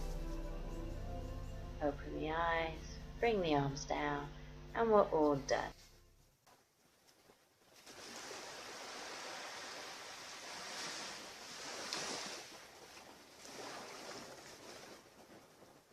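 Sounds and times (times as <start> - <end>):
ocean surf washing up beach: 7.8 - 15.6.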